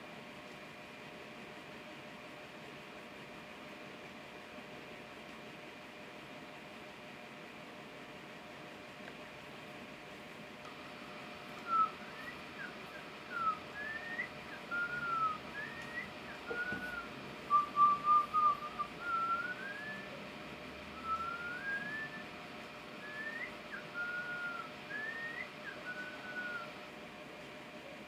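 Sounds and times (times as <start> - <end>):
faint steady hiss: 7.4 - 28.0
clear whistled notes: 11.6 - 20.1.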